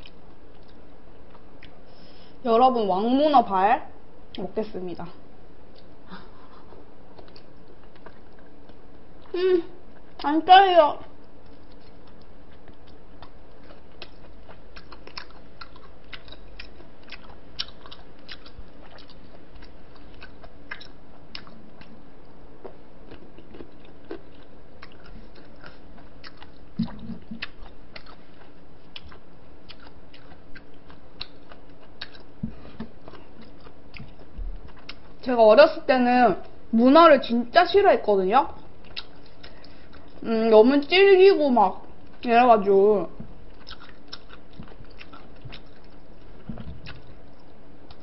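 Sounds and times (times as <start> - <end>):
close chewing with wet mouth clicks: 0.0 - 1.8, 7.1 - 9.3, 11.1 - 35.3, 38.6 - 40.2, 43.5 - 48.0
person chewing food: 0.0 - 2.3, 5.7 - 10.3, 11.0 - 35.3, 38.6 - 40.2, 43.3 - 48.0.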